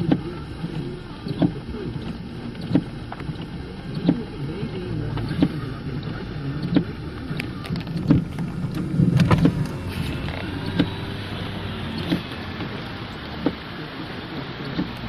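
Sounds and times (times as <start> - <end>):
vehicle driving through water: 0.0 - 15.0
regular thumps: 5.0 - 13.7.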